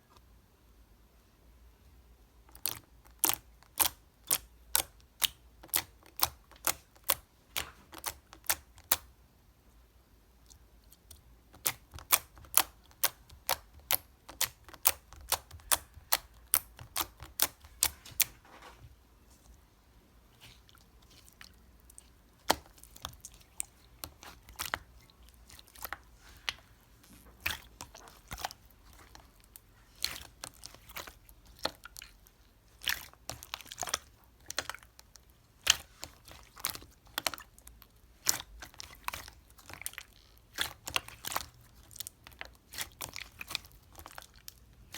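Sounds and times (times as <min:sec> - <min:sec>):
slime clicking and popping: 0:02.5 - 0:09.1, 0:11.1 - 0:18.0, 0:21.9 - 0:26.7.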